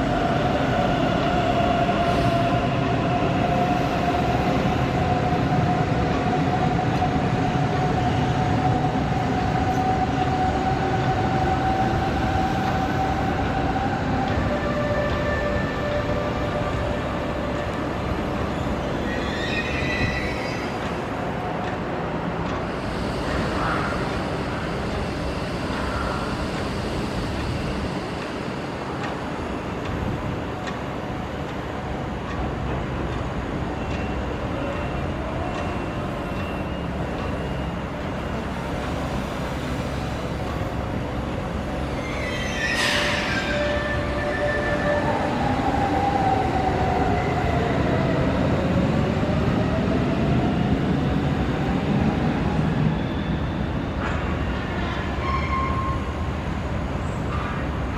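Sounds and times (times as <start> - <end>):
high metallic squeals: 19.0 - 20.8, 41.8 - 45.0, 55.1 - 56.2.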